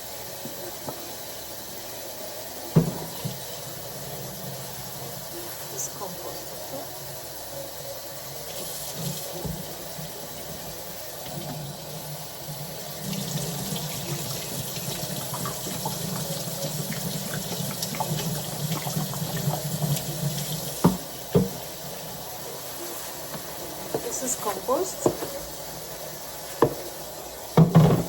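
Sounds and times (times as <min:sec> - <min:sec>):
tap running into a sink: 0:02.7 - 0:03.7, 0:08.6 - 0:11.8, 0:12.5 - 0:22.2, 0:25.0 - 0:25.5, 0:26.4 - 0:26.9, 0:27.5 - 0:28.0.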